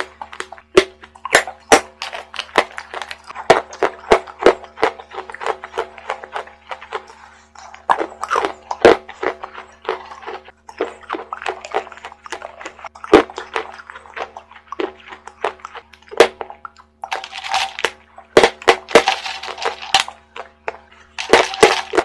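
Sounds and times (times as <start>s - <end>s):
crackly crunches: 0.0s - 22.0s
wet chewing: 0.0s - 22.0s.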